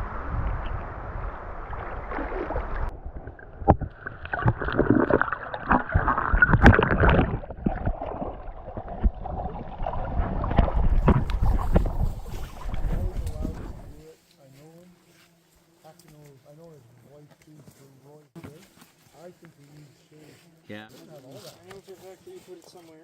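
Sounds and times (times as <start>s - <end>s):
paddle splashing in water: 1.6s - 14.0s.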